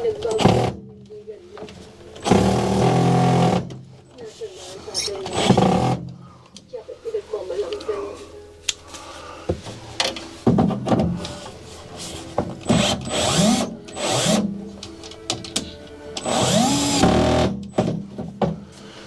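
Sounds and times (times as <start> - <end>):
power drill whining: 2.2 - 3.7, 5.0 - 6.0, 12.6 - 15.5, 16.2 - 17.8.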